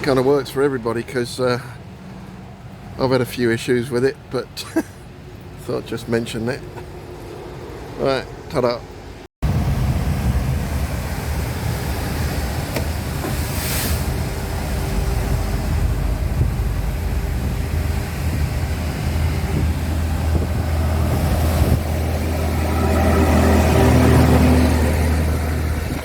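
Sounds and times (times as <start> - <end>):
road and wind noise: 0.0 - 26.0
truck engine drone: 9.0 - 26.0.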